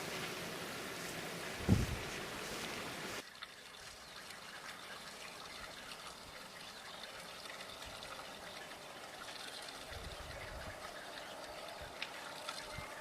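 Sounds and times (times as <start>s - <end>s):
steady rain falling: 0.0s - 13.0s
water trickling: 0.0s - 13.0s.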